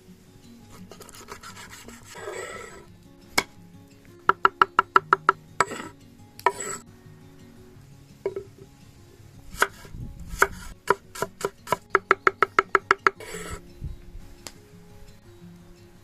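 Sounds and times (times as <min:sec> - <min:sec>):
soft acoustic guitar music: 0:00.0 - 0:16.0
rubbing and scraping of food: 0:00.7 - 0:02.9.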